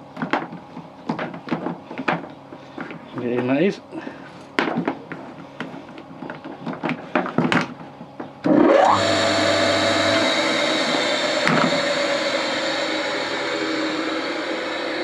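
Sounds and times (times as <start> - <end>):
electric motor humming: 8.5 - 15.0.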